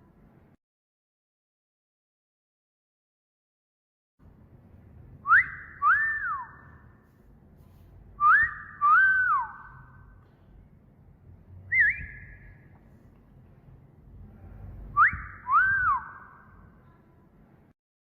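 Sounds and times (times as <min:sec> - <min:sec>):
wolf whistle: 0:05.2 - 0:06.8, 0:08.2 - 0:10.0, 0:11.7 - 0:12.6, 0:14.9 - 0:16.5
short wavering whistle: 0:05.2 - 0:06.9, 0:08.2 - 0:10.1, 0:11.7 - 0:12.6, 0:14.8 - 0:16.7.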